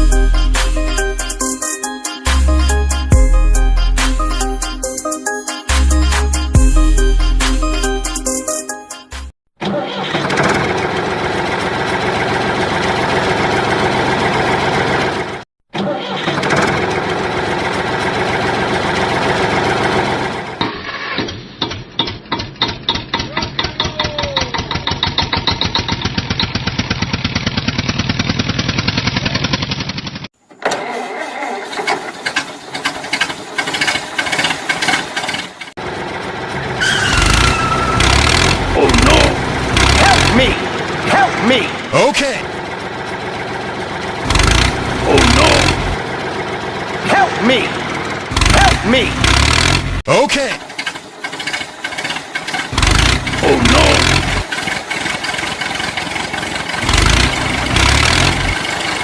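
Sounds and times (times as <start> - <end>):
tractor engine chugging: 10.2 - 15.4, 16.4 - 20.6, 21.6 - 59.0.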